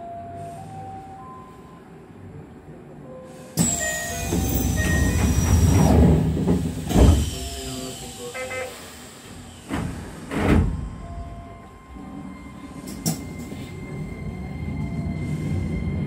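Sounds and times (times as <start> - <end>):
electric train running: 3.6 - 10.2.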